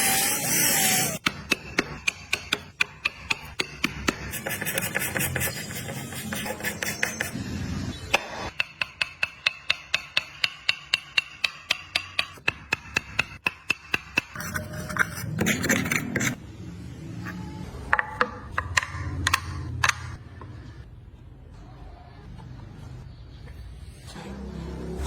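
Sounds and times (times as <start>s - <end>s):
hammer tapping on wood: 8.5s - 14.3s.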